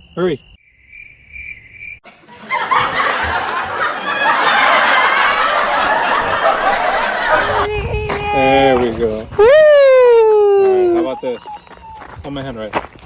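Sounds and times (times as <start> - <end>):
high insect trill: 0.0 - 2.0, 7.6 - 13.0
loud dense laughter: 2.1 - 8.0.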